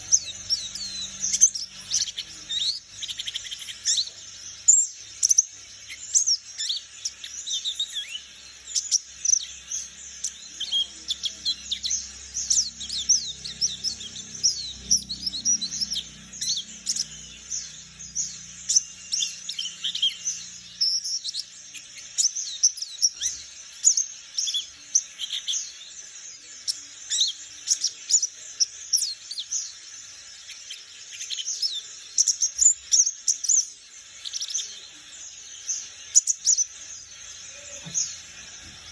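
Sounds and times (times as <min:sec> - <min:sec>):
bird twittering chirps: 0:00.0 - 0:38.9.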